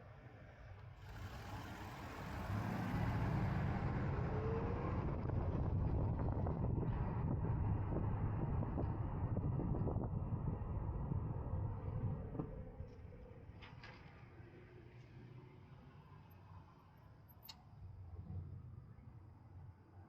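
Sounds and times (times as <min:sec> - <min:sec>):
wind and road noise: 0:00.3 - 0:20.0
electric motorcycle pulling away: 0:01.0 - 0:05.6.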